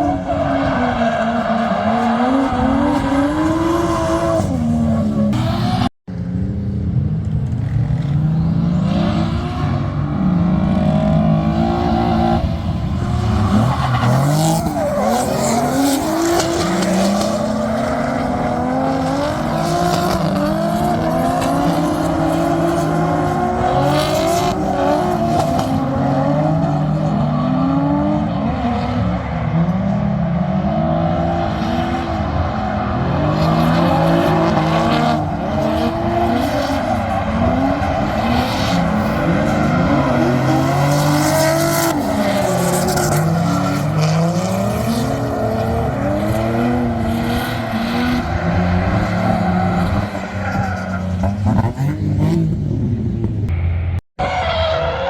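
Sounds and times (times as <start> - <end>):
car engines revving: 0.0 - 55.0
tyre squeal: 54.2 - 55.0.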